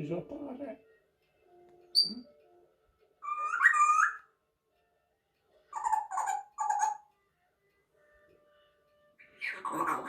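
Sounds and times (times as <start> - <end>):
parrot whistling: 1.9 - 2.3, 3.2 - 4.3, 5.7 - 7.1, 9.2 - 10.0.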